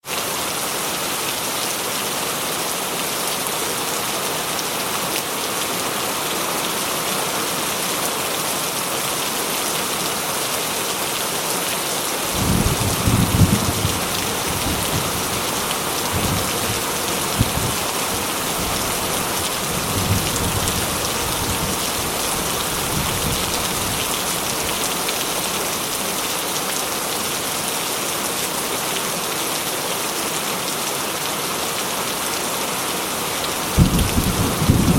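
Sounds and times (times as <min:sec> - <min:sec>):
heavy rain falling: 0:00.0 - 0:34.9
thunder rumbling: 0:12.3 - 0:24.1, 0:33.8 - 0:34.9.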